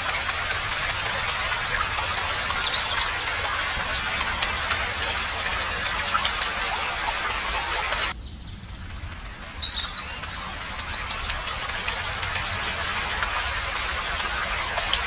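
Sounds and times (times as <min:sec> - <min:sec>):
steady rain hiss: 0:00.0 - 0:15.0
bird chirping: 0:08.1 - 0:12.6.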